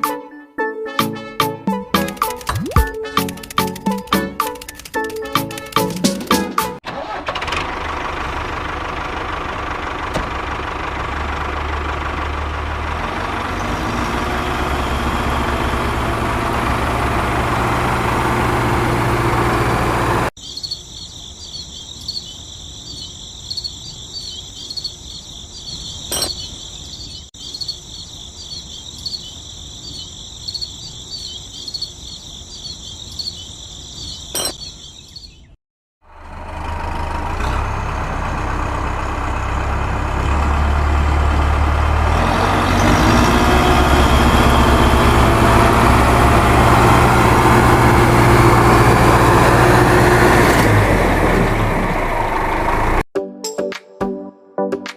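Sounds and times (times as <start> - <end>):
sharp clicks: 2.0 - 6.4
small engine running: 6.9 - 20.3, 36.1 - 53.0
crickets chirping: 20.4 - 35.4.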